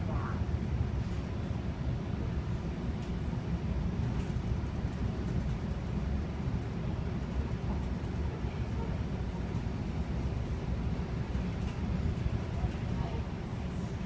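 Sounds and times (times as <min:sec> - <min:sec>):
train rumbling from inside coach: 0:00.0 - 0:14.0.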